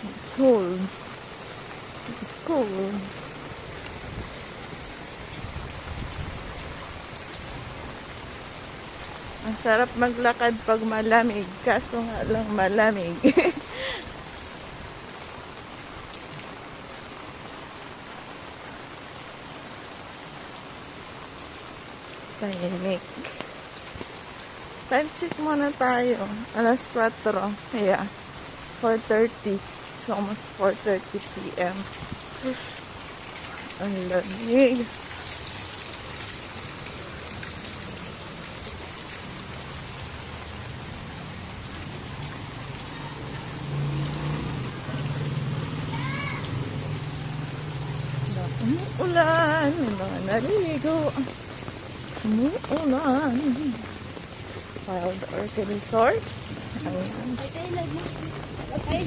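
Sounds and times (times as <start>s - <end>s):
rain pattering on ground: 0.0s - 59.0s.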